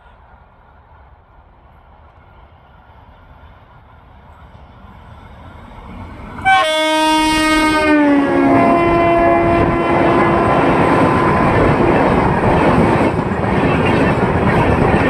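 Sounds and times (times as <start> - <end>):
locomotive horn: 6.4 - 11.7.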